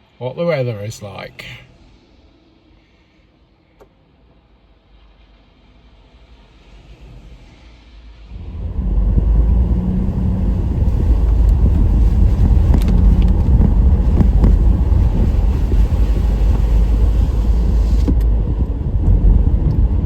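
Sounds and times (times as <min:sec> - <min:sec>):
car engine and tyre rumble: 0:03.6 - 0:20.0.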